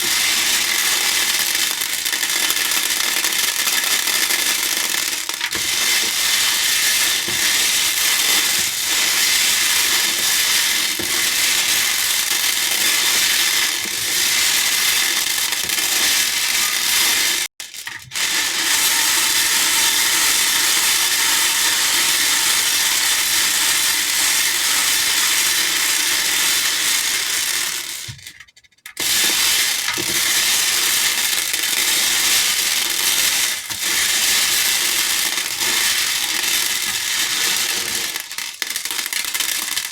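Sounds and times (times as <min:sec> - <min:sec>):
beads rattling against a bowl: 0:00.0 - 0:39.9.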